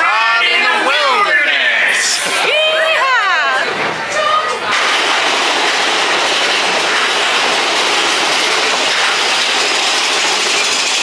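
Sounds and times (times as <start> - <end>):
roller coaster rattling on track: 3.6 - 11.0.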